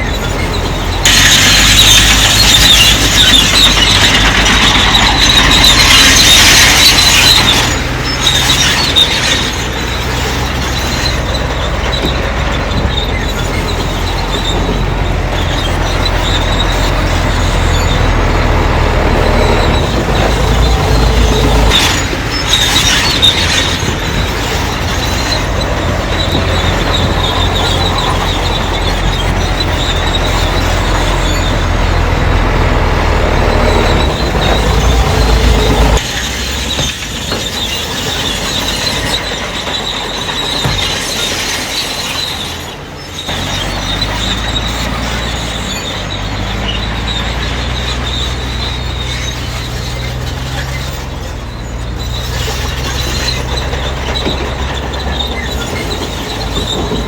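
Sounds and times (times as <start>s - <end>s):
loud scrape: 0.0s - 31.8s
bulldozer engine under load: 0.0s - 57.0s
steel tracks squealing: 0.0s - 57.0s.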